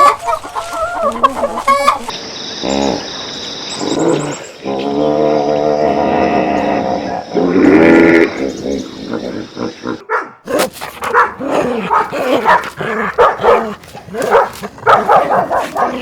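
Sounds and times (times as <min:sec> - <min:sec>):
dogs barking and yipping: 0:00.0 - 0:02.2, 0:10.0 - 0:16.0
drawn-out animal call: 0:10.7 - 0:16.0.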